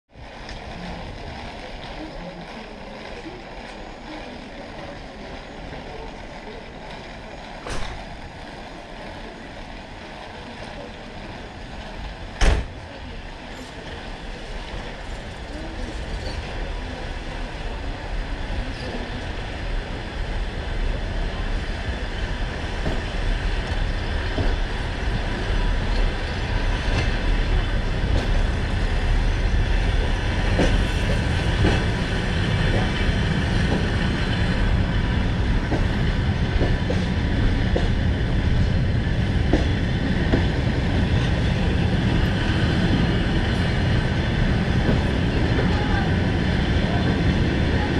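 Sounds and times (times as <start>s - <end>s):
train wheels rolling on rails: 0.1s - 47.9s
clicks of train wheels: 22.7s - 28.6s, 30.0s - 34.6s, 35.6s - 41.4s.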